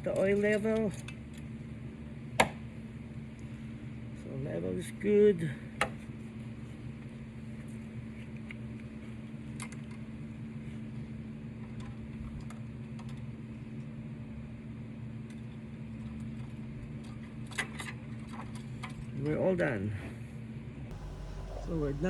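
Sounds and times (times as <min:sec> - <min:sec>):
low engine hum: 0:20.9 - 0:22.0.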